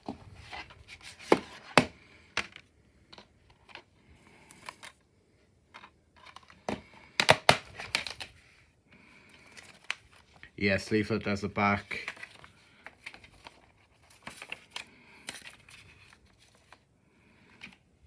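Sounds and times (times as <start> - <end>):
plastic case clicks and knocks: 6.7 - 8.1.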